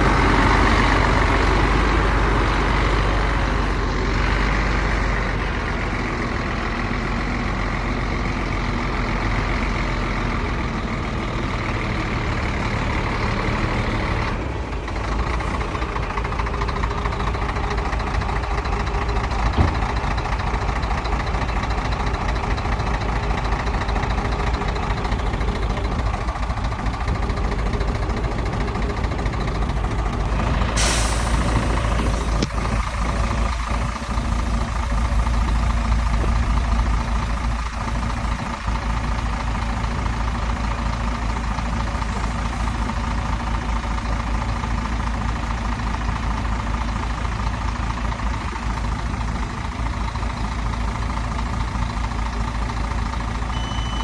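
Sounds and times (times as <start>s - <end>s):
heavy diesel engine running: 0.0s - 54.0s
air release hiss: 30.8s - 32.8s.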